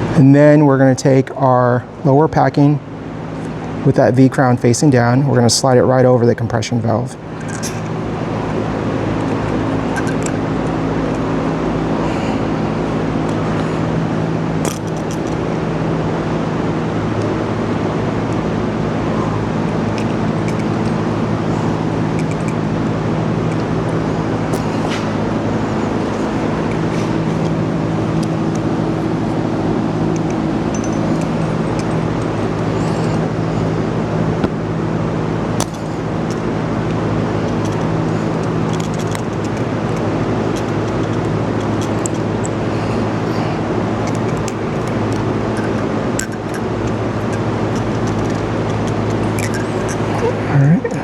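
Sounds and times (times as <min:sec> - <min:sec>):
machinery humming: 0:00.0 - 0:51.0
faint clicks of small parts: 0:07.4 - 0:08.0, 0:09.1 - 0:11.3, 0:14.6 - 0:15.4, 0:19.7 - 0:21.1, 0:21.7 - 0:22.6, 0:30.1 - 0:33.3, 0:35.6 - 0:43.4, 0:44.0 - 0:50.3.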